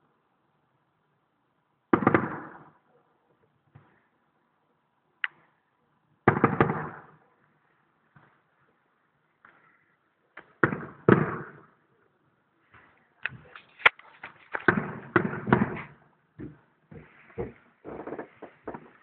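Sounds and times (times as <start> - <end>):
distant fireworks bangs and crackles: 6.3 - 7.2, 10.4 - 11.7, 14.6 - 17.1.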